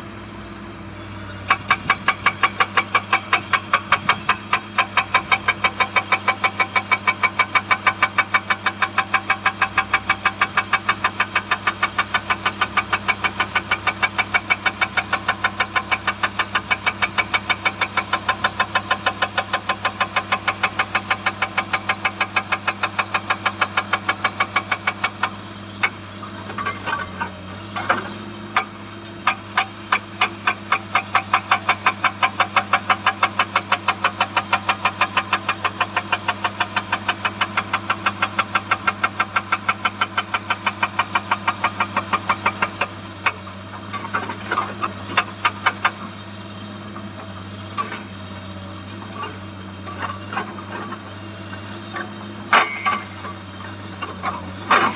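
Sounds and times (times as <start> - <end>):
diesel engine running: 0.0 - 54.9
hydraulic rock breaker hammering: 1.3 - 46.2, 46.8 - 54.9.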